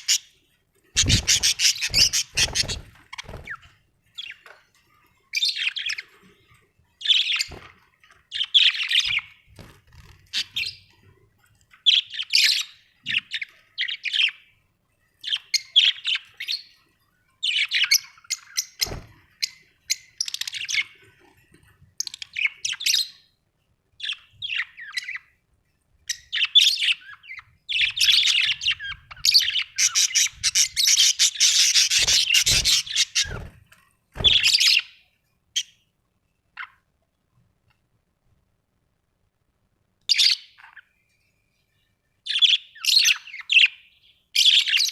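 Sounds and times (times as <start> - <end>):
budgerigars chirping and chattering: 0.0 - 0.4, 1.0 - 4.4, 5.3 - 6.1, 7.0 - 7.7, 8.3 - 9.4, 10.0 - 10.9, 11.7 - 14.5, 15.2 - 16.8, 17.4 - 21.0, 22.0 - 23.2, 24.0 - 25.2, 26.1 - 33.5, 34.2 - 35.0, 42.3 - 44.9.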